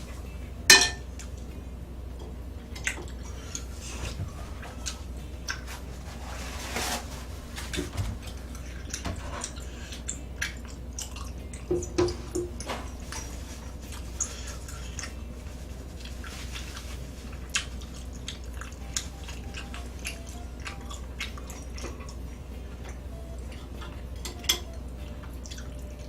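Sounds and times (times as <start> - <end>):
wet chewing and mouth smacking: 8.2 - 11.7, 13.1 - 26.0.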